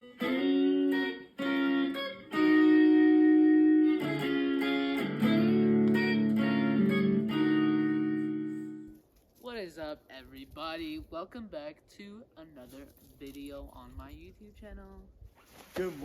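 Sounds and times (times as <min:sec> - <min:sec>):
guitar playing sustained chords: 0:00.0 - 0:09.0.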